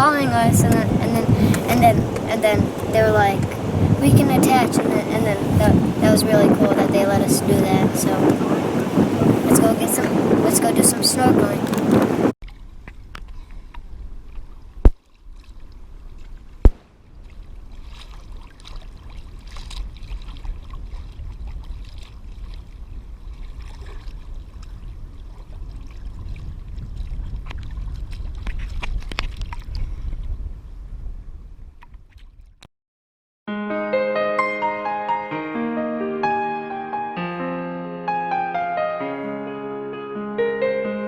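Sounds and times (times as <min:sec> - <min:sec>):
steady low rumble: 0:00.0 - 0:10.4
water sloshing and gurgling: 0:00.0 - 0:30.4, 0:31.8 - 0:32.6.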